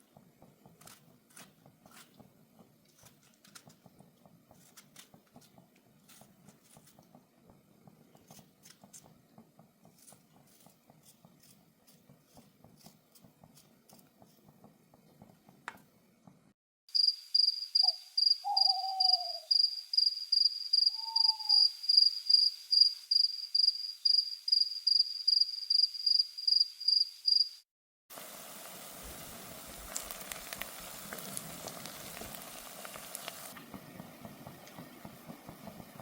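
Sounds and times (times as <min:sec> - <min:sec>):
cricket chirping: 0:17.0 - 0:27.6
falling lower calls: 0:17.8 - 0:19.6, 0:20.9 - 0:21.8
steady hiss: 0:28.1 - 0:36.0
faint crackles: 0:28.2 - 0:36.0.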